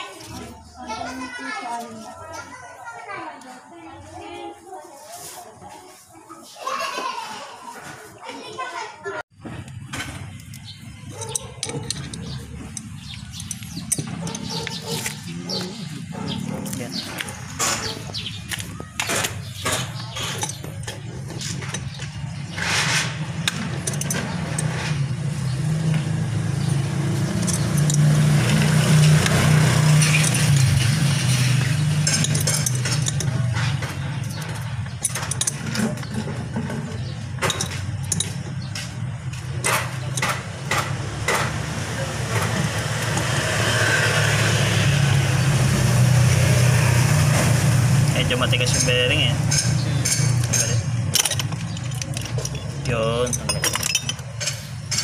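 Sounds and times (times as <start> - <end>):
metal tool knocks and clinks: 10.0 - 15.2, 17.0 - 22.2, 23.4 - 25.0, 27.2 - 29.4, 30.0 - 38.9, 48.5 - 55.0.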